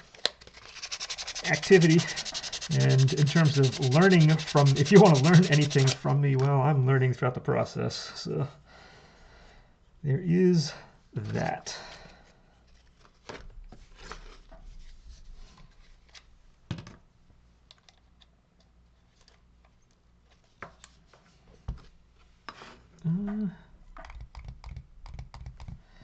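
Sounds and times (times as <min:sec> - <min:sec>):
man humming: 0:23.0 - 0:23.7.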